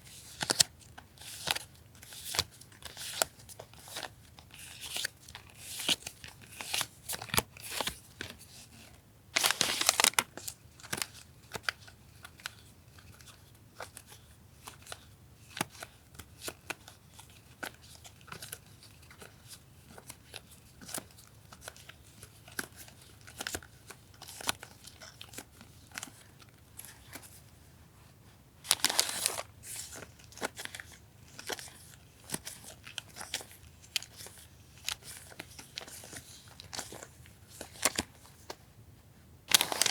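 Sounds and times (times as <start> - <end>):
paper rustling and crinkling: 0.1 - 14.2, 28.6 - 38.6, 39.5 - 39.9.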